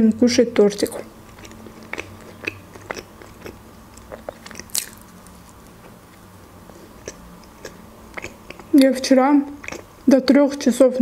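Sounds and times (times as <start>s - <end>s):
wet mouth clicks: 0.8s - 5.2s, 6.9s - 10.0s
crunchy bread chewing and biting: 0.8s - 8.8s, 9.5s - 10.0s.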